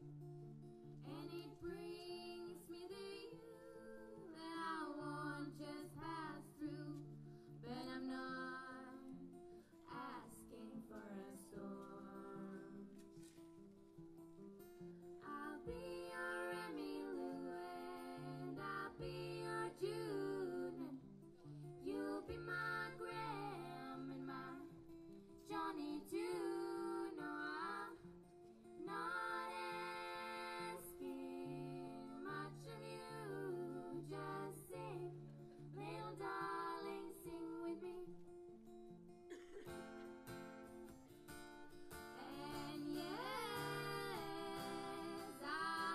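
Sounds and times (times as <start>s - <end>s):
plucked acoustic guitar: 0.0s - 45.9s
person singing: 15.2s - 21.0s, 21.8s - 24.7s, 25.5s - 28.0s, 28.8s - 38.2s, 42.1s - 45.9s.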